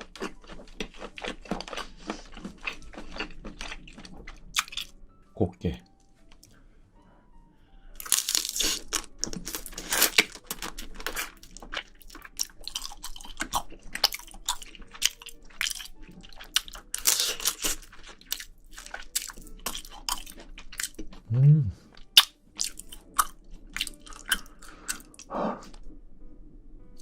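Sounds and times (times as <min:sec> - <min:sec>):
crunching and chewing crab shell: 0:00.0 - 0:05.0, 0:08.0 - 0:21.3, 0:21.9 - 0:25.8.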